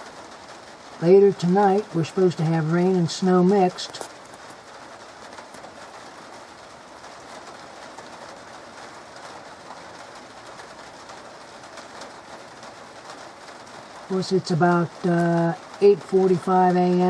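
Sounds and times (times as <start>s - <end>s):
light rain pattering: 0.0s - 17.0s.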